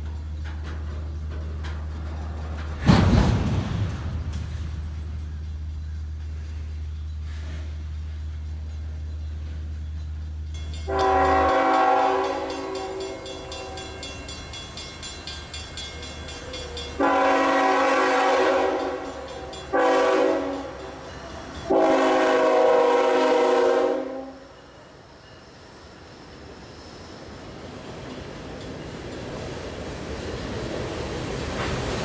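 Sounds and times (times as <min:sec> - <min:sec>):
locomotive air horn blasts: 0:10.9 - 0:14.0, 0:17.0 - 0:20.8, 0:21.7 - 0:24.5.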